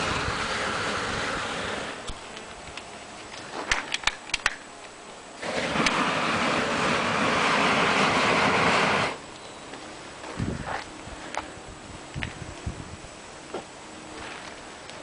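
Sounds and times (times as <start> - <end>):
aerosol spray flame hissing: 0.0 - 2.5, 5.4 - 9.3.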